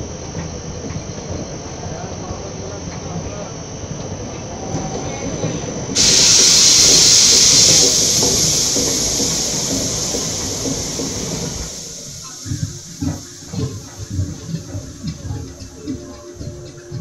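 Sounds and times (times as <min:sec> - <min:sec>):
train wheels rumbling on track: 0:04.3 - 0:17.0
loud hiss: 0:06.0 - 0:14.5.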